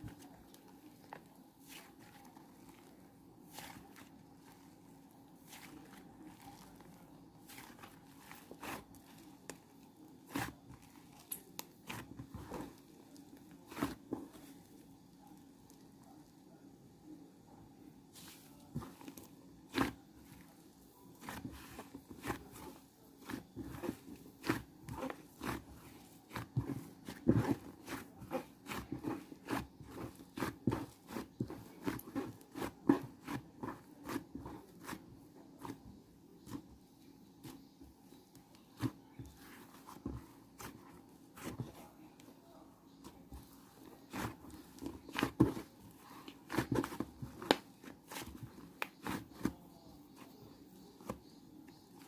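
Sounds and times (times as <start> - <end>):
crunching and chewing food: 0.0 - 16.1.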